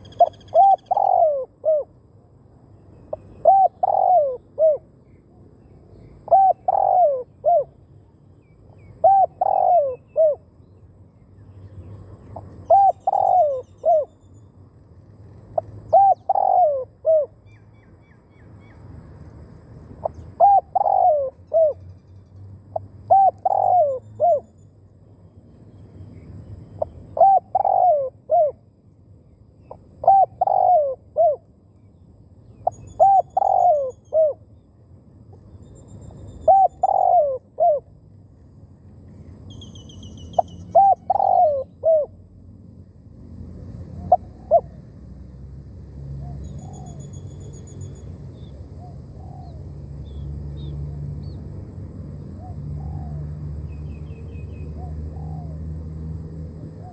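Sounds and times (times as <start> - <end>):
small birds chirping: 0.0 - 1.4, 31.8 - 37.3, 39.1 - 41.9
dove cooing: 0.0 - 2.0, 3.1 - 4.9, 6.2 - 7.8, 8.9 - 10.4, 12.4 - 14.1, 15.6 - 17.4, 20.0 - 21.8, 23.1 - 24.4, 27.1 - 28.6, 29.7 - 31.4, 32.6 - 34.4, 36.5 - 37.9, 40.6 - 42.2, 43.9 - 44.9, 48.8 - 49.6, 52.4 - 53.3, 54.8 - 55.6.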